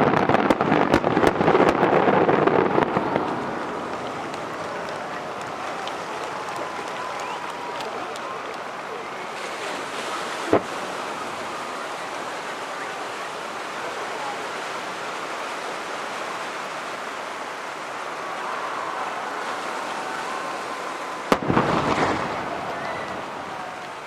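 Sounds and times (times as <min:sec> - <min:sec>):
rushing background noise: 0:00.0 - 0:24.0
firework bang: 0:10.4 - 0:10.9, 0:21.3 - 0:24.0.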